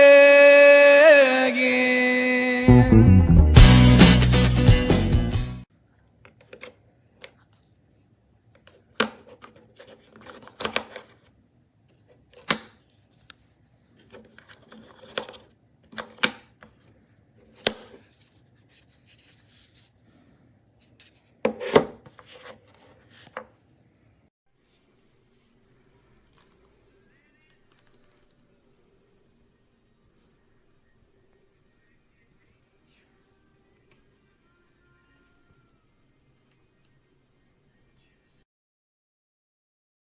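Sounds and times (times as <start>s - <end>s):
handling clicks and taps: 6.3s - 7.4s, 8.6s - 11.2s, 14.0s - 16.8s
rubbing or scraping sounds: 6.3s - 11.3s, 11.9s - 20.0s, 20.8s - 23.7s.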